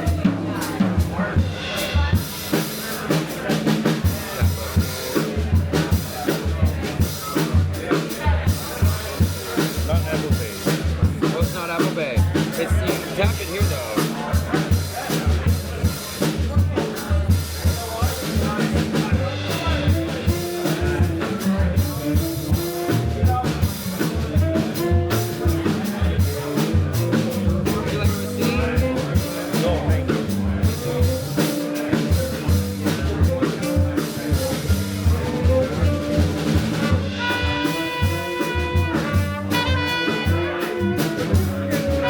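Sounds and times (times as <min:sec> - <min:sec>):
drum kit: 0:00.0 - 0:42.0
jazz band playing: 0:00.0 - 0:42.0
low bass notes: 0:17.3 - 0:42.0
horn holding long notes: 0:37.1 - 0:42.0.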